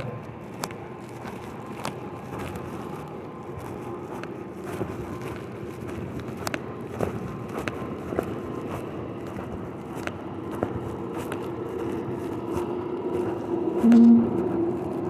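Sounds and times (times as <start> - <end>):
vehicles rumbling: 0.0 - 15.0
faint steady tone: 13.8 - 14.6.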